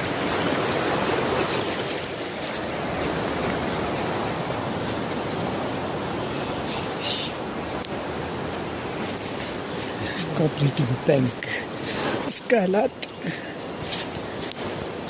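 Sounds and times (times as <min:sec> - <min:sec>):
fast-flowing water rushing: 0:00.0 - 0:15.0.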